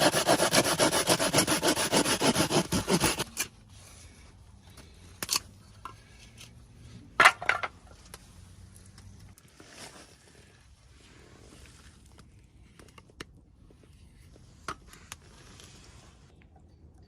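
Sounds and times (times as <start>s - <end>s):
hand saw cutting wood: 0.0s - 3.4s.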